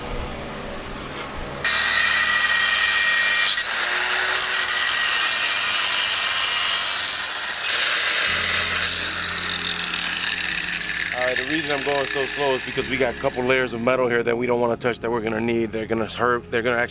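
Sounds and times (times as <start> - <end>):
power tool cutting sheet metal: 1.0 - 13.9.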